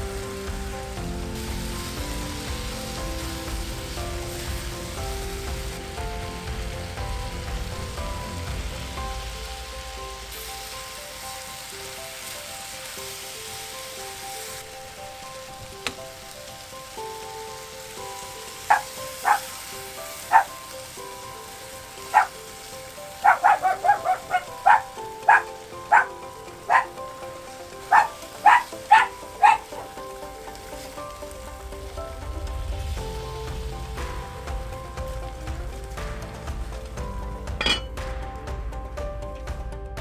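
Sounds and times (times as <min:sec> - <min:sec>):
food sizzling in frying pan: 0:00.0 - 0:39.9
soft background music: 0:00.0 - 0:40.0
dog barking: 0:18.6 - 0:20.8, 0:21.8 - 0:30.2.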